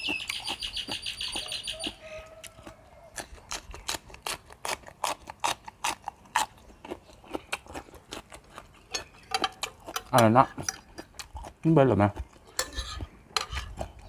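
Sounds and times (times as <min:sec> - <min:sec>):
pods being bitten and chewed: 0:00.0 - 0:14.0.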